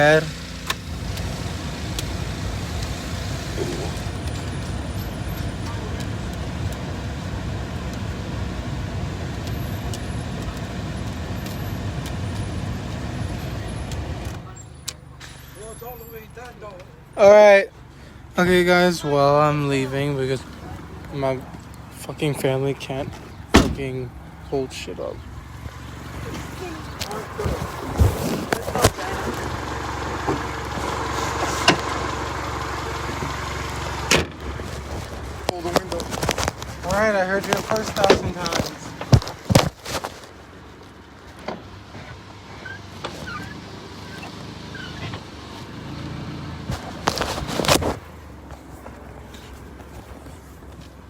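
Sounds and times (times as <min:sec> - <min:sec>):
car engine idling: 0:00.0 - 0:51.0.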